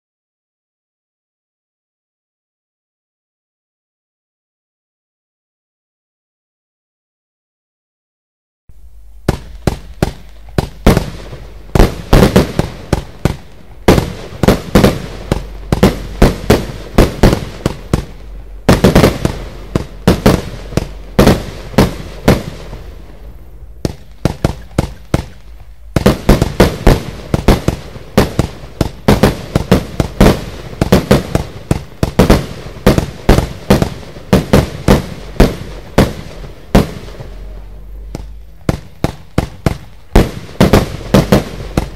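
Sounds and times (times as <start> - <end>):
firework sharp bangs: 9.2 - 41.9.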